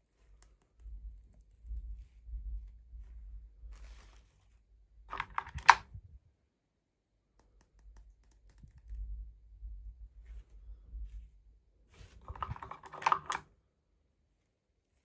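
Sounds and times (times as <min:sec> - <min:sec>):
plastic toy pieces clicking: 0:05.1 - 0:05.8, 0:12.3 - 0:13.4.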